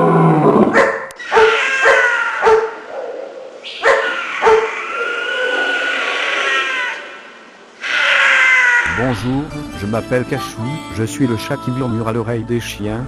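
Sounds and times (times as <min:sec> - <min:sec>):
dog barking: 0:00.7 - 0:04.8.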